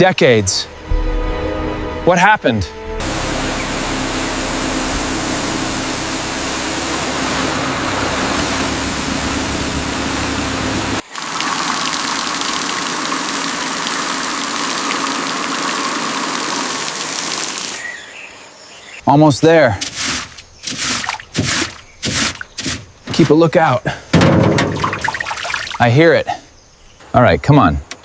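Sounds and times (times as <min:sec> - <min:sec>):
engine running: 0:00.7 - 0:17.0
loud hiss: 0:03.0 - 0:11.2, 0:19.8 - 0:24.0.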